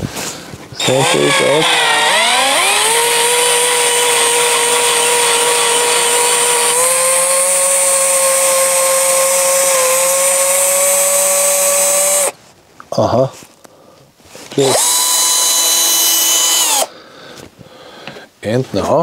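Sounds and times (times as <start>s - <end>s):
electric drill drilling metal: 0.8s - 12.3s, 14.6s - 16.9s.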